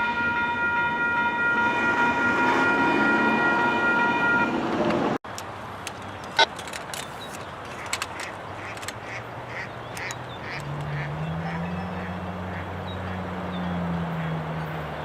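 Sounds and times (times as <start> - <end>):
low engine hum: 4.7 - 15.0.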